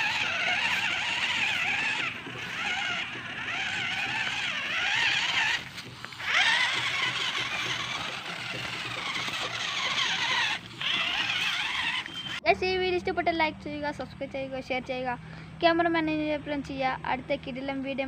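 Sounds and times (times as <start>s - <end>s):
rc truck motor whining: 0.0s - 12.6s.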